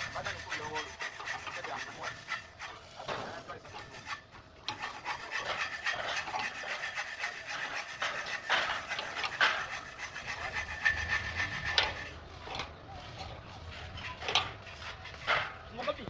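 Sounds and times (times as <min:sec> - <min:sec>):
saw cutting in rasping strokes: 0:00.0 - 0:16.0.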